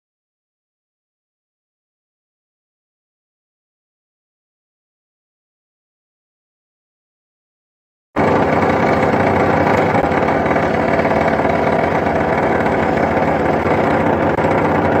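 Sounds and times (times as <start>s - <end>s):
machine motor drone: 8.2s - 15.0s.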